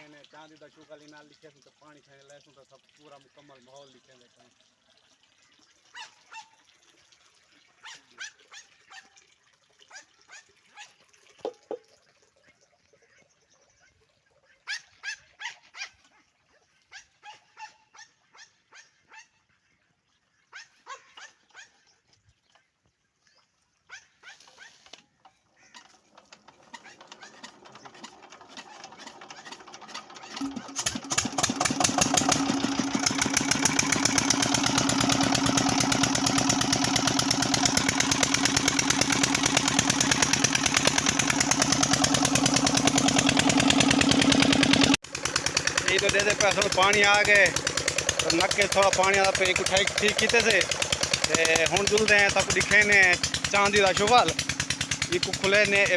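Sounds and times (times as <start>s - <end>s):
dog barking: 7.8s - 9.1s, 14.6s - 16.3s, 16.9s - 19.4s, 20.5s - 21.7s
diesel engine running: 26.1s - 55.9s.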